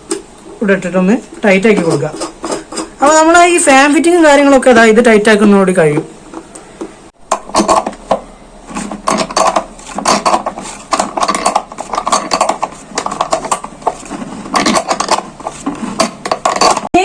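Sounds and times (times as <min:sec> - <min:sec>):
nut tightening clicks and scraping: 0:09.1 - 0:13.7, 0:14.5 - 0:15.3.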